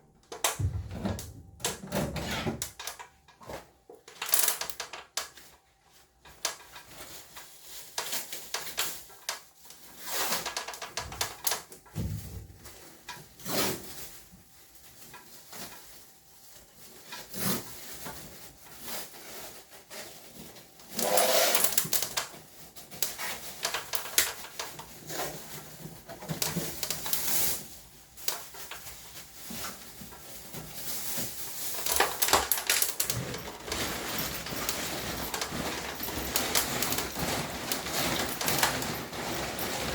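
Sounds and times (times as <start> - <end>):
plastic and metal parts clattering: 0.2 - 14.2, 16.8 - 39.9
scraping rattle: 31.0 - 39.9.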